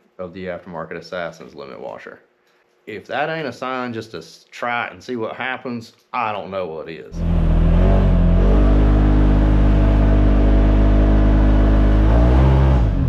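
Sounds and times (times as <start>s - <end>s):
engine running hard: 7.1s - 13.0s.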